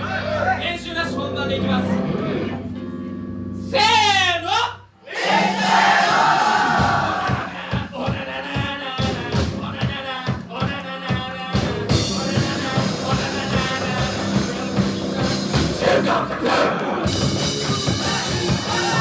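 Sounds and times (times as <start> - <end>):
guitars: 0.0 - 3.8, 6.2 - 19.0
drums beat: 5.2 - 19.0
person singing: 7.1 - 19.0.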